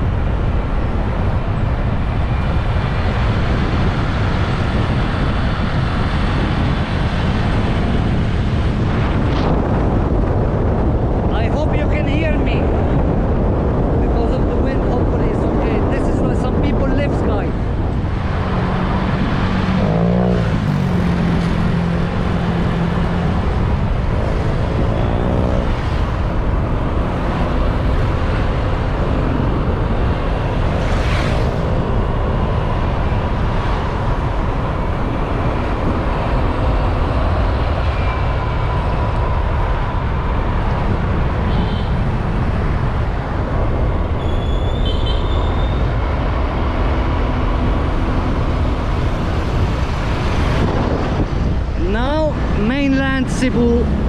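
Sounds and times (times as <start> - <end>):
passing traffic: 0.0 - 54.0
wind on microphone: 0.0 - 54.0
motorbike engine rumble: 17.5 - 52.6.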